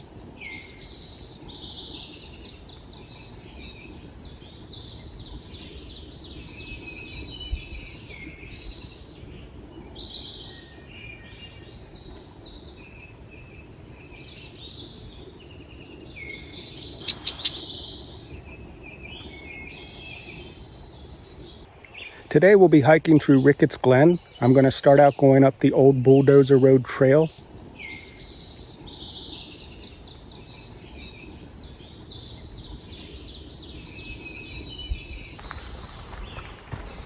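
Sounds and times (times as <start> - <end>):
faint background hiss: 0.0 - 37.0
wild birds singing: 0.0 - 37.0
sharp bird notes: 16.9 - 18.1.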